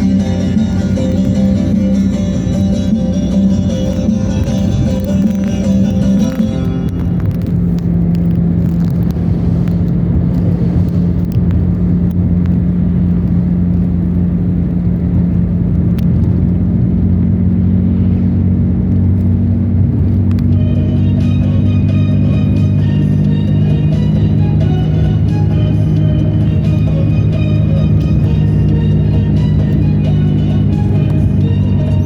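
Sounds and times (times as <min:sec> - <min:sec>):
music: 0:00.0 - 0:07.5, 0:20.5 - 0:32.0
car engine and road drone: 0:00.0 - 0:32.0.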